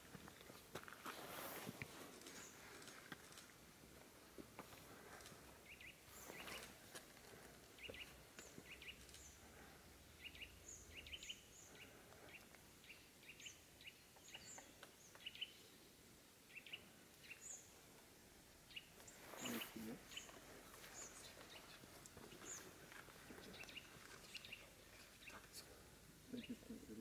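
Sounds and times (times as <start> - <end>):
faint small bird chirps: 10.2 - 15.7, 18.7 - 22.8.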